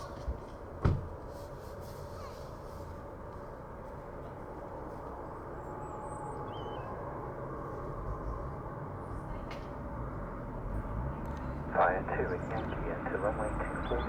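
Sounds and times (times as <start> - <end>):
faint chirp: 12.1 - 14.0.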